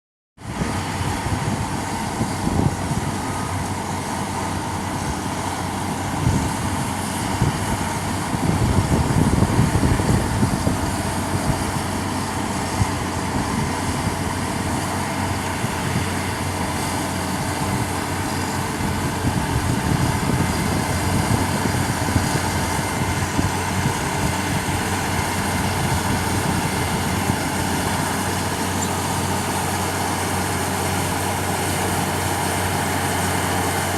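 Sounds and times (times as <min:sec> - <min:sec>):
bulldozer diesel engine running: 0:00.4 - 0:33.9.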